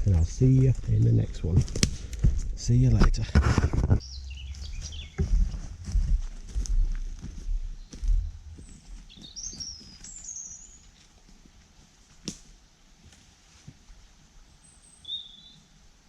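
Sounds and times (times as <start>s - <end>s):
low thuds: 0.0s - 8.4s
faint woodland background: 0.0s - 16.0s
small bird chirping: 4.0s - 5.5s, 7.8s - 10.9s, 14.6s - 15.7s.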